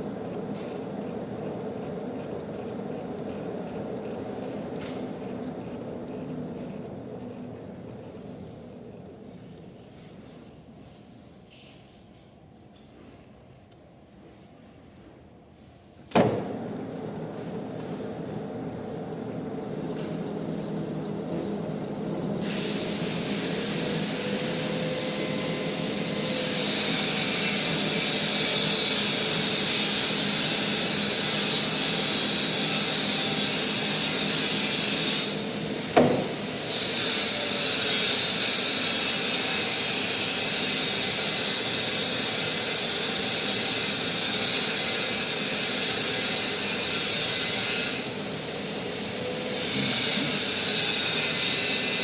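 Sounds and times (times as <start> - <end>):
metal lathe humming: 0.0 - 9.4, 16.5 - 48.3
loud high hiss: 19.6 - 52.0.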